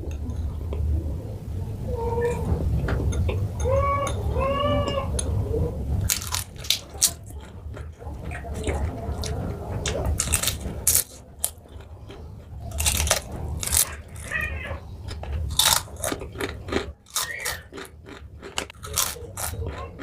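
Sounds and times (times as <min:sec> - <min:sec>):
chewing crunchy fried food: 0:06.0 - 0:20.0.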